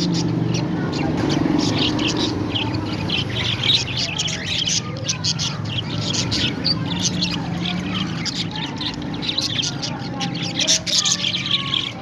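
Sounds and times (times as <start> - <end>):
parrots chattering: 0.0 - 12.0.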